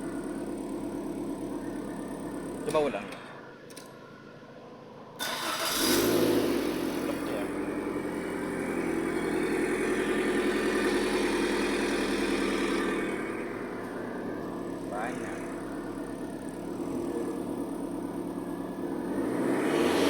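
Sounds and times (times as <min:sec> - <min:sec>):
car engine starting and idling: 0:00.0 - 0:02.9, 0:05.2 - 0:20.0.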